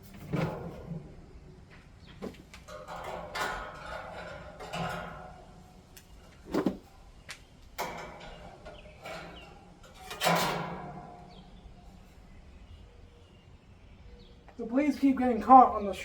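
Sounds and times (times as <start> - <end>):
fan blades clanking on metal: 0.0 - 13.4.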